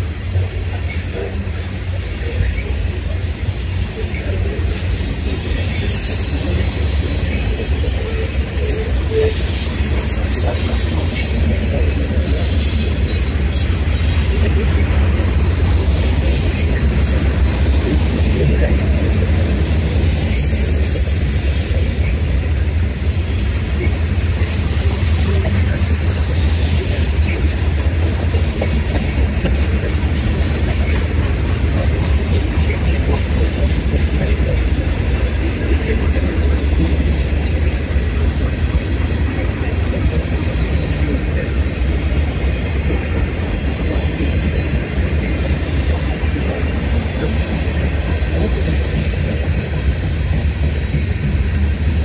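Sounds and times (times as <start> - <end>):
train wheels rumbling on rail: 0.0 - 52.0
wheel squeal: 4.8 - 11.4, 19.1 - 22.4.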